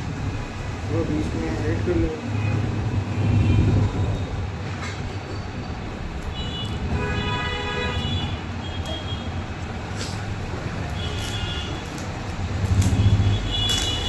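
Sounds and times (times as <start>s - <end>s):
road traffic rumble: 0.0s - 14.0s
vehicle horn: 6.4s - 9.3s.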